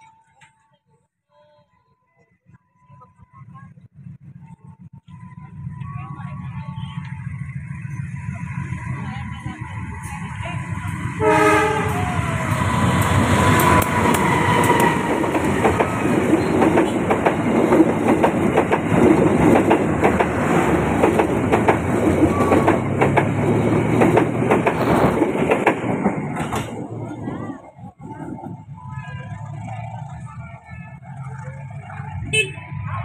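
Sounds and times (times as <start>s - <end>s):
locomotive engine rumble: 2.5s - 33.0s
train horn: 11.0s - 16.0s, 32.3s - 32.8s
wheels clicking over rail joints: 12.0s - 28.5s.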